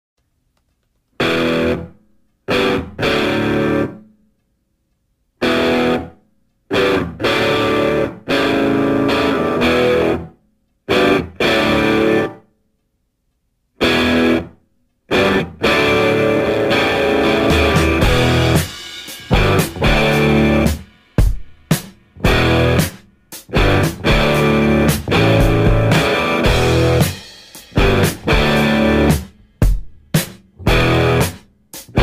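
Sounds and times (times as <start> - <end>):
distorted guitar chords: 1.2 - 4.1, 5.4 - 12.4, 13.8 - 32.0.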